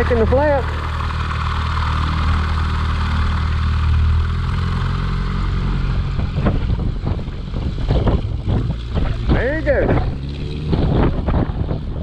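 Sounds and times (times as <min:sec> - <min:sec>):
motorcycle engine idling: 0:00.0 - 0:10.3
propeller airplane engine running: 0:00.0 - 0:12.0
wind buffeting microphone: 0:03.2 - 0:12.0.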